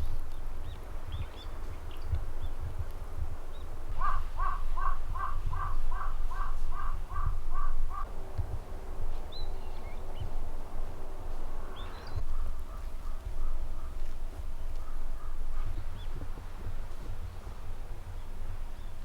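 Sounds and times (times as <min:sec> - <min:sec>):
crow cawing: 0:04.0 - 0:08.1.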